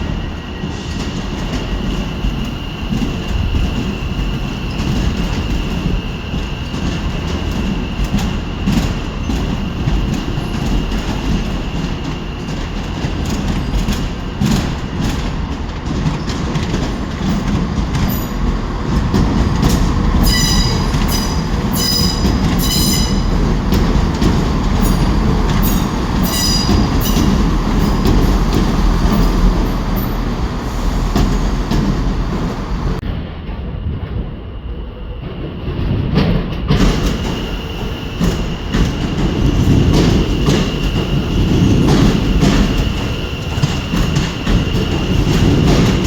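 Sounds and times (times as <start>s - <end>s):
train rumble: 0.0s - 46.0s
wheels clicking over rail joints: 6.8s - 33.0s
high-pitched wheel squeal: 20.2s - 32.8s.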